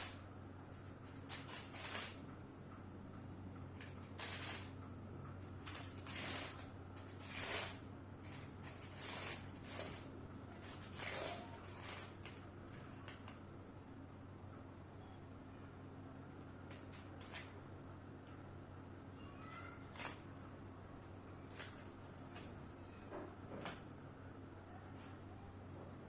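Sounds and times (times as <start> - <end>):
paper rustling and crinkling: 5.6 - 13.4.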